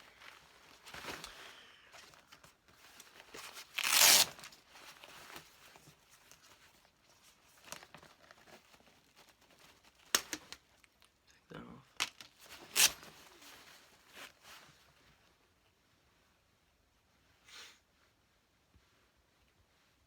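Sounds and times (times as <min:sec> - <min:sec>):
packaging ripping: 0:03.5 - 0:04.6, 0:12.5 - 0:13.1.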